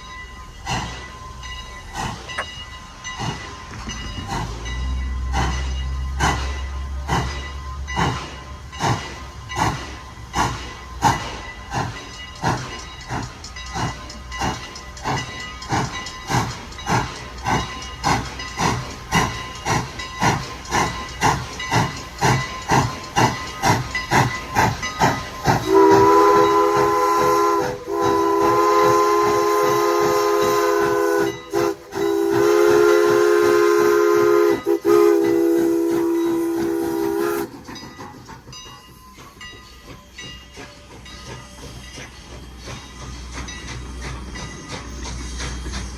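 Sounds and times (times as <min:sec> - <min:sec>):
steam locomotive chuffing: 0:00.0 - 0:45.9
steam whistle blasts: 0:25.6 - 0:37.5.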